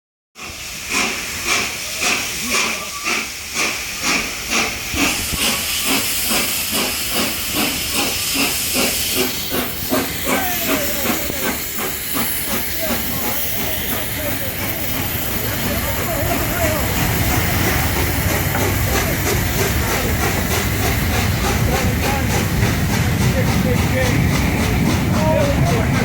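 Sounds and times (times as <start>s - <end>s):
steam hissing: 0.4s - 26.0s
steam locomotive exhaust chuffs: 0.4s - 26.0s.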